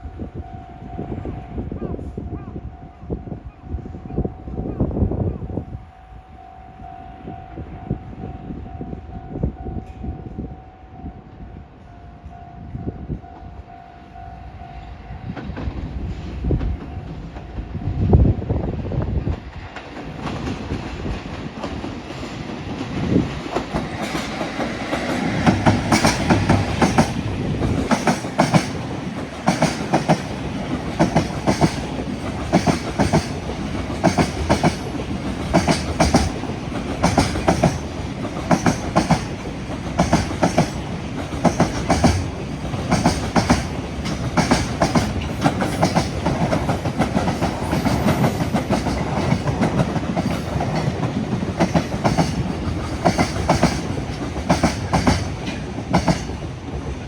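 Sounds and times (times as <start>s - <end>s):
electric train rumble: 0.0s - 57.0s
train wheels clacking over rail joints: 19.5s - 57.0s.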